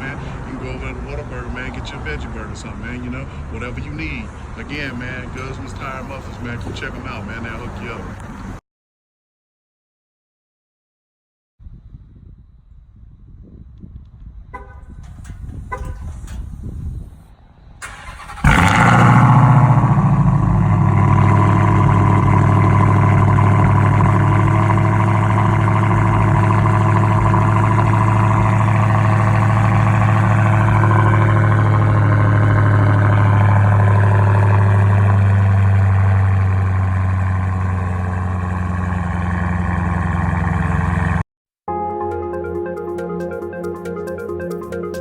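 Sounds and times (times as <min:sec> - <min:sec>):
car engine starting and idling: 0:14.6 - 0:41.2.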